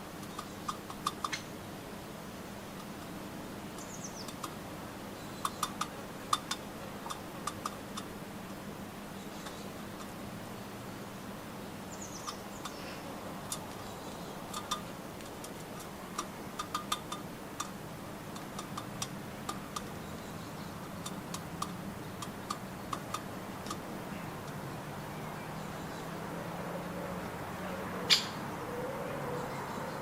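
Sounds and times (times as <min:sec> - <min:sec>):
birds pecking at nuts: 0:00.0 - 0:01.6, 0:02.6 - 0:08.6, 0:12.1 - 0:25.2.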